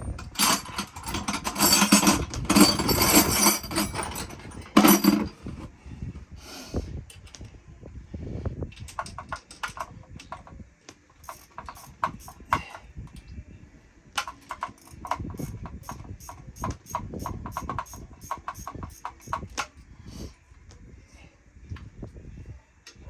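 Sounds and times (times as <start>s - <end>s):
ratchet wrench clicking: 11.2s - 12.5s, 14.2s - 19.5s.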